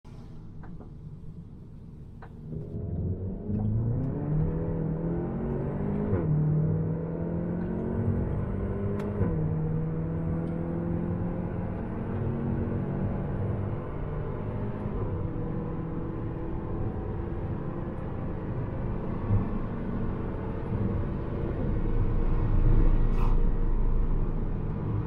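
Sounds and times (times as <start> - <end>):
car engine accelerating hard: 2.4 - 25.0.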